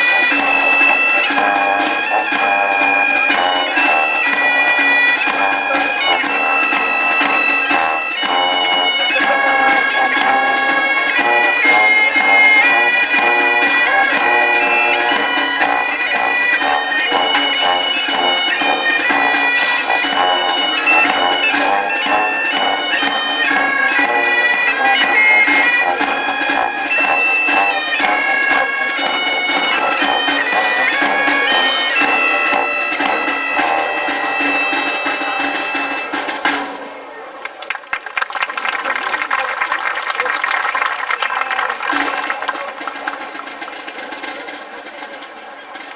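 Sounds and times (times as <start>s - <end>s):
bagpipes playing a tune: 0.0s - 36.5s.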